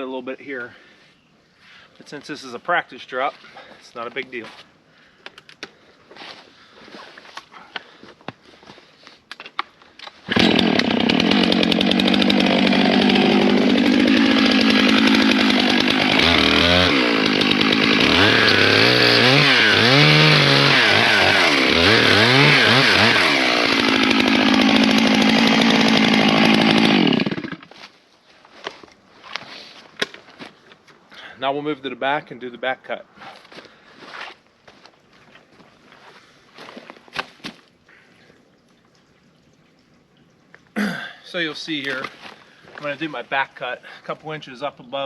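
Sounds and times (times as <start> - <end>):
chainsaw cutting wood: 10.0 - 27.8.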